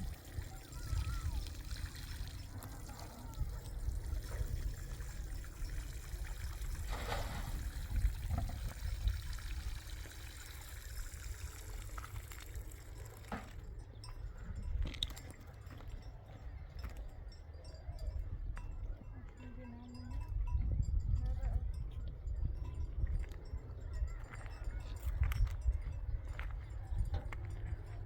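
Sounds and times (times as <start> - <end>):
water pouring and trickling: 0.0 - 14.0.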